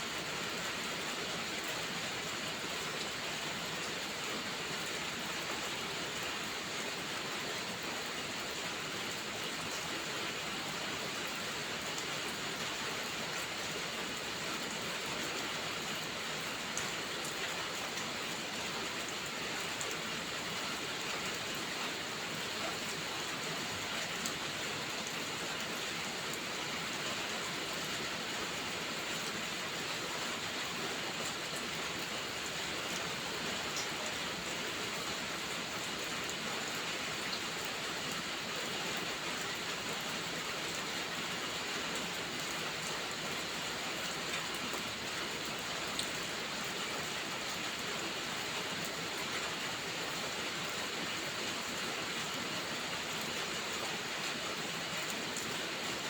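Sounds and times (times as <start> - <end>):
steady rain hiss: 0.0 - 56.0
faint raindrop ticks: 23.9 - 26.5, 31.5 - 34.4, 41.9 - 46.2.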